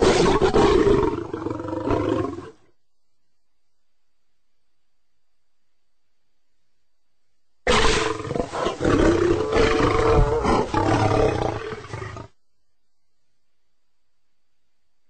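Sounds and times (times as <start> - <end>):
lion roaring: 0.0 - 2.6, 7.7 - 12.4.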